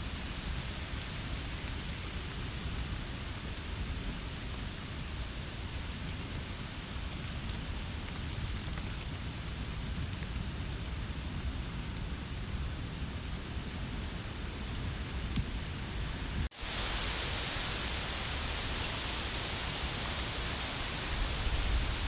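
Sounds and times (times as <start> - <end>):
steady rain: 0.0 - 22.0
raindrop ticks: 7.1 - 9.2.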